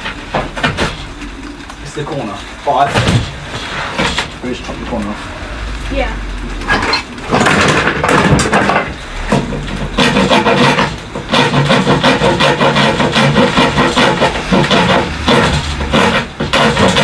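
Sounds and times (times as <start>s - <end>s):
hand file rasping wood: 9.2s - 17.0s.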